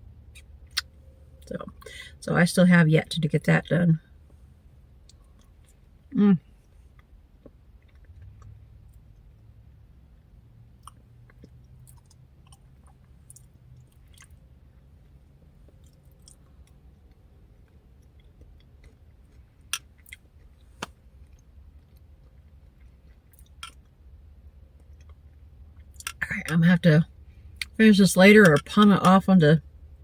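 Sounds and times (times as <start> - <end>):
steady low hum: 0.0 - 30.0
faint chewing and mouth sounds: 4.0 - 9.9, 10.6 - 26.3.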